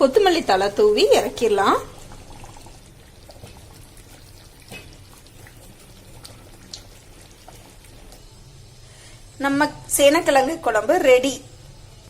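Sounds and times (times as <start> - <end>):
curry bubbling in a pan: 0.0 - 9.0.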